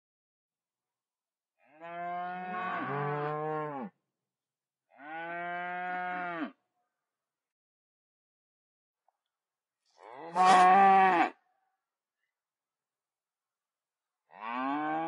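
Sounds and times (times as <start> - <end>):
cattle mooing: 1.8 - 3.9, 5.0 - 6.6, 10.0 - 11.3, 14.4 - 15.0.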